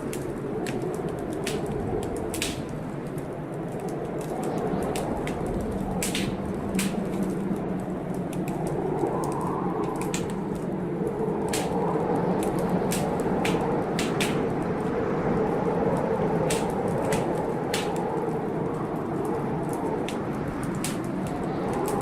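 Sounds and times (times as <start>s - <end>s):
low storm noise: 0.0s - 22.0s
wood fire crackling: 0.0s - 22.0s.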